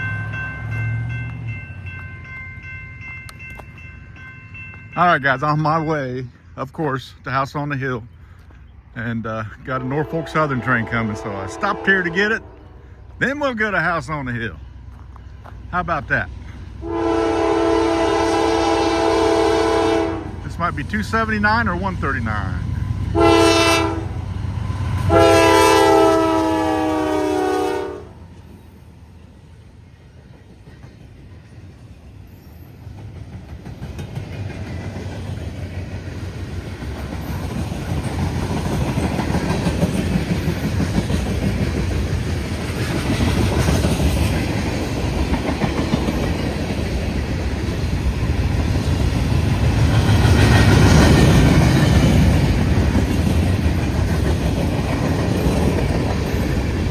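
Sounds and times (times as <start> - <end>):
train rumble: 0.0 - 56.9
train horn blast: 9.8 - 13.0, 16.8 - 20.4, 23.1 - 24.3, 25.0 - 28.2
wheels clattering on rails: 30.1 - 56.9.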